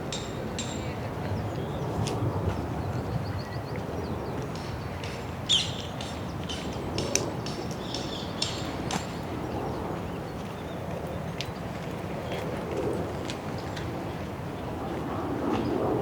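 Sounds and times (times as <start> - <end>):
small birds chirping: 3.3 - 10.8.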